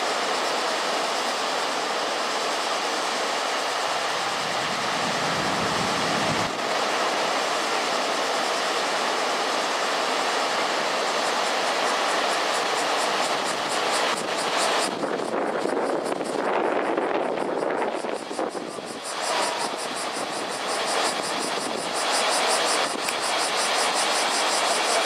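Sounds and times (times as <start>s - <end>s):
surf breaking along shore: 0.0s - 25.0s
wind: 0.0s - 25.0s.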